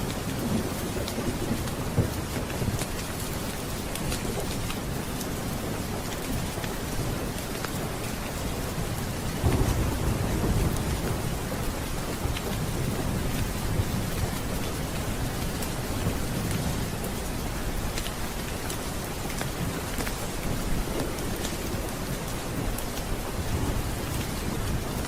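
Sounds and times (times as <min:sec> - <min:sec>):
steady rain: 0:00.0 - 0:25.0
thunder rumble: 0:08.7 - 0:17.8.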